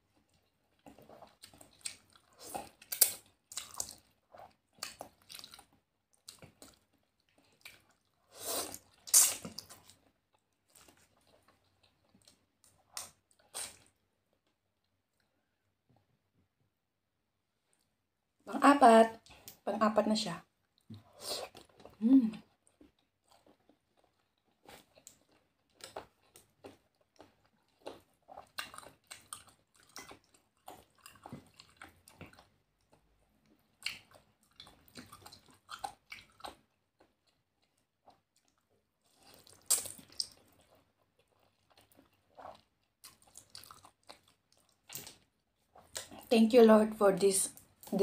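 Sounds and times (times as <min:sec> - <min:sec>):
person chewing and eating: 0:00.0 - 0:15.6, 0:20.6 - 0:46.3
wet mouth clicks and smacks: 0:39.5 - 0:40.4, 0:44.5 - 0:45.2.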